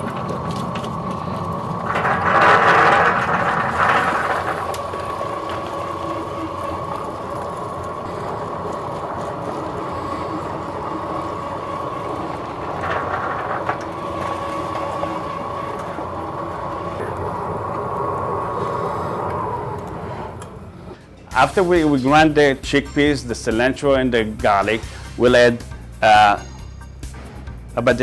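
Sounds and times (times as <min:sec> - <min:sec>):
electric grinder motor whining: 0:00.0 - 0:21.1.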